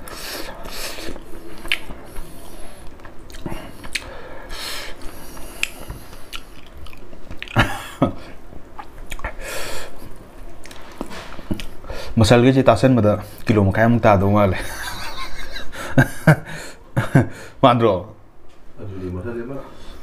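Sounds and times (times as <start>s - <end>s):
man chewing and lip-smacking: 0.0s - 7.7s, 8.6s - 9.4s, 10.0s - 11.8s.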